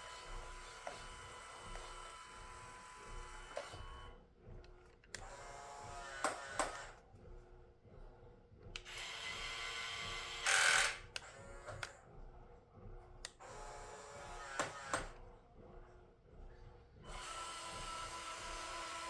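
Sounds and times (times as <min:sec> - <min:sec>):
small electric motor whirring: 0:08.8 - 0:11.9.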